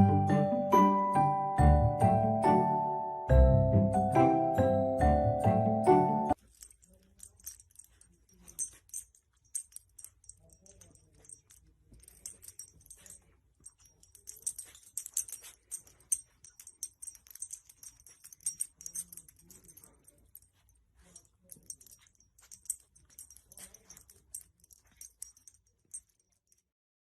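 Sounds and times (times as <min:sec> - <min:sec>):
metallic jingling and clicking: 0:06.3 - 0:26.7.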